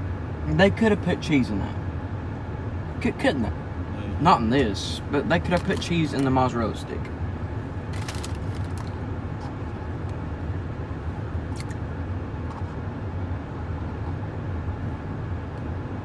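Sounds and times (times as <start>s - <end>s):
truck engine running: 0.3s - 12.4s.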